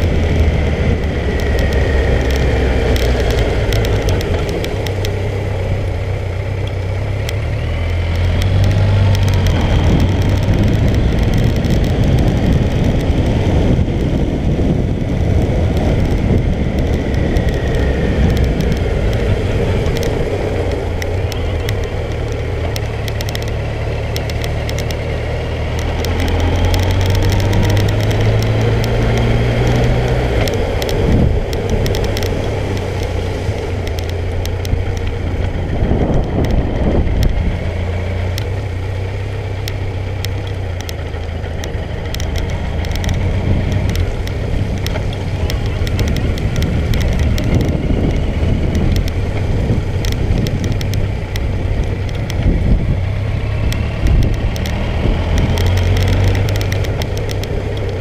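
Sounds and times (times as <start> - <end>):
motorcycle engine running: 0.0 - 58.0
road noise: 0.0 - 58.0.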